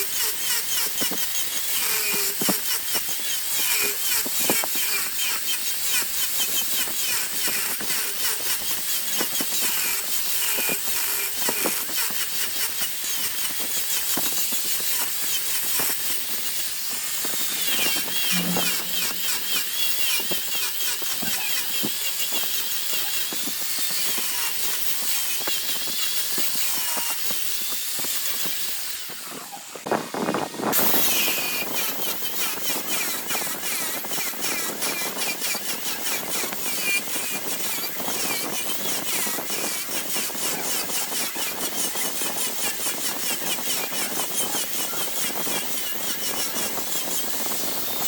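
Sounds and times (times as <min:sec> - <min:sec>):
wood turning on a lathe: 0:17.0 - 0:19.8.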